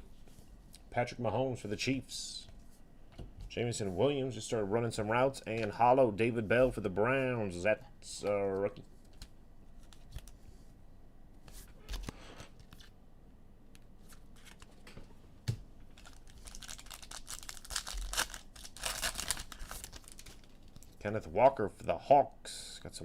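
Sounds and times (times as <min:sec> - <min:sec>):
foil wrappers crinkling and tearing: 0:15.9 - 0:21.0.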